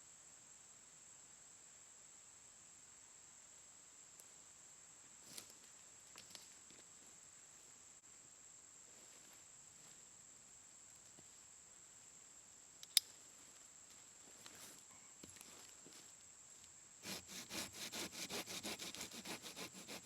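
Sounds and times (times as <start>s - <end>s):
sharp click: 12.8s - 13.1s
soft rustles: 13.2s - 16.2s.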